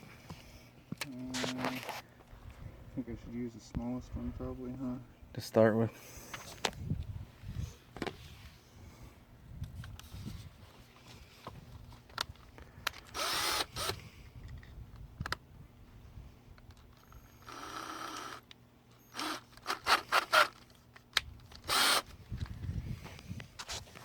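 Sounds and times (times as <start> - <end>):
electric drill bursts: 13.1 - 14.0, 17.0 - 20.6, 21.7 - 22.1.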